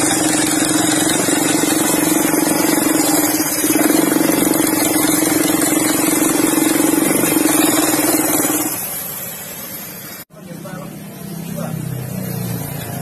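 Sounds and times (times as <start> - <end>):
scooter engine rough rumble: 0.0 - 9.7.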